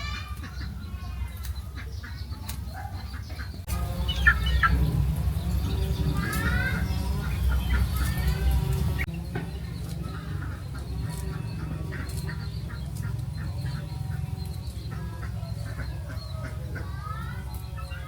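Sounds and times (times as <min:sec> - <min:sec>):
chickens clucking: 0:00.0 - 0:18.0
low rumble: 0:03.6 - 0:16.8.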